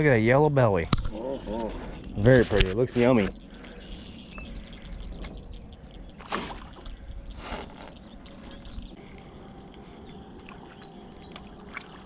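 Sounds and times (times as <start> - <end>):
low rumble: 0.0 - 12.0
water sloshing: 5.3 - 9.0, 9.6 - 12.0.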